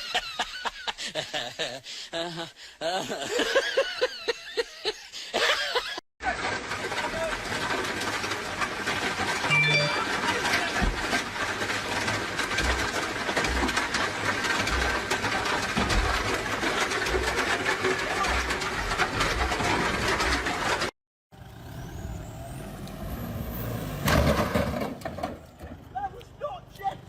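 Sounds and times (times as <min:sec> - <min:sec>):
truck engine knocking and clattering: 0:06.2 - 0:21.6, 0:23.8 - 0:27.0.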